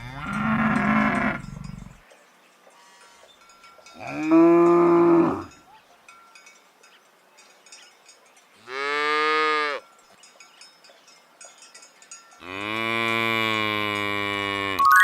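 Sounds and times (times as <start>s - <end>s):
cow mooing: 0.0s - 1.9s, 4.0s - 5.5s, 12.4s - 14.8s.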